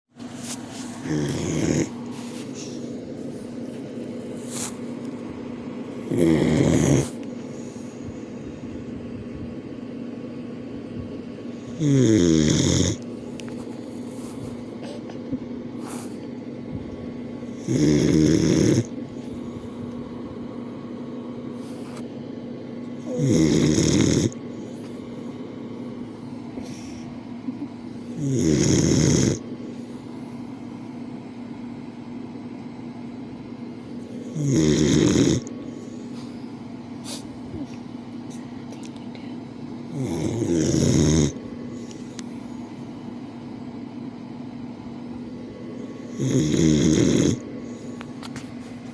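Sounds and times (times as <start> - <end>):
dog snoring: 0.9 - 2.7, 6.0 - 8.4, 11.6 - 13.0, 17.4 - 19.8, 23.0 - 24.9, 28.1 - 30.1, 34.2 - 36.3, 39.8 - 41.4, 46.0 - 48.0.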